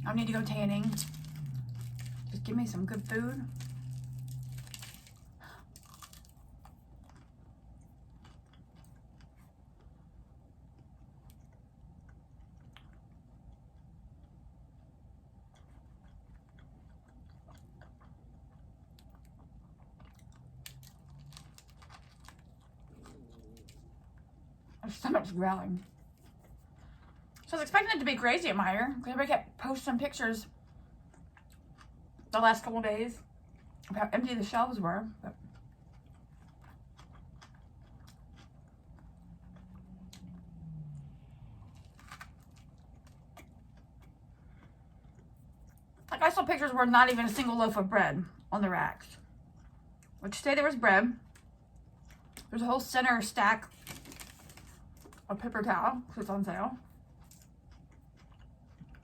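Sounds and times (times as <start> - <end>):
low falling tone: 0.0 - 5.0, 39.2 - 41.9
chewing and crunching food: 0.0 - 59.0.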